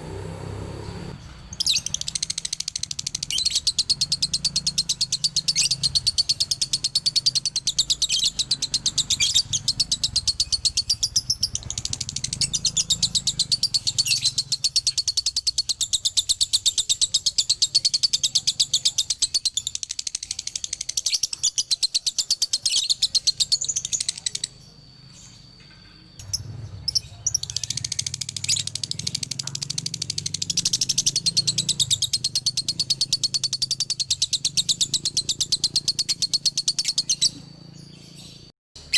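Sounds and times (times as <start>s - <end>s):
lovebird chattering shrill chirps: 1.5s - 24.6s, 26.2s - 37.6s.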